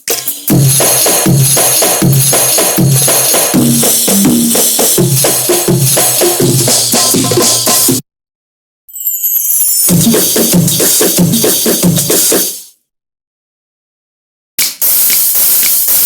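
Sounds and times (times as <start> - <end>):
jingling tambourine hits: 0.0 - 7.8, 8.9 - 12.7
drum strokes: 0.0 - 8.0, 9.9 - 12.7
repeating bass line: 2.9 - 5.2.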